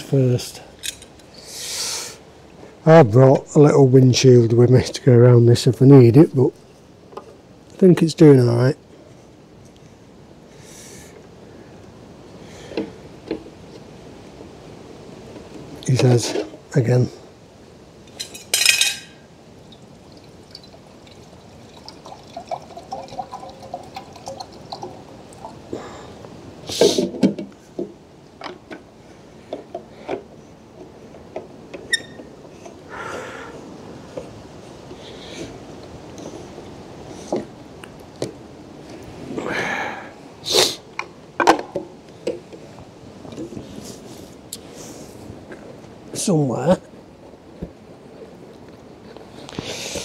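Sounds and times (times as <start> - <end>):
water heating with faint ticks: 19.7 - 26.4.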